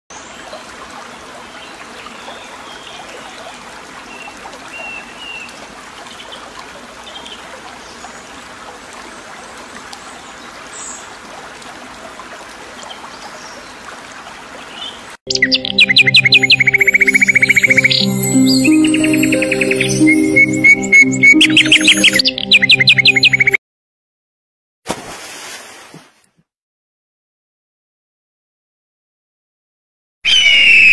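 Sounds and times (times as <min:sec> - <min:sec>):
trickling stream: 0:00.1 - 0:23.6
birds chirping: 0:14.6 - 0:23.6
loud music: 0:15.4 - 0:23.6.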